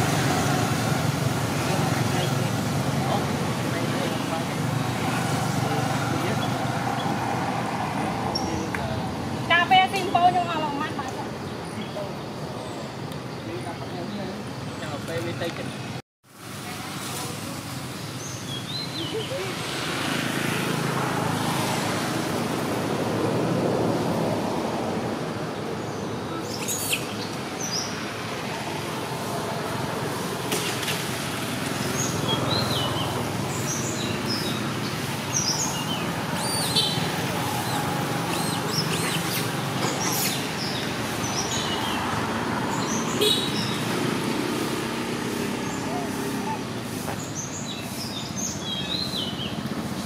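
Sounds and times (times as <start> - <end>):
small birds chirping: 18.0 - 20.2, 25.4 - 28.5, 31.6 - 50.0.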